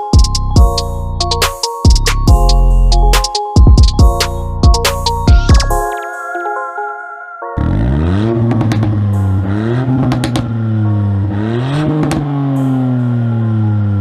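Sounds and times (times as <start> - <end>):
exhaust cracks: 7.6 - 12.7
car engine revving: 7.6 - 14.0.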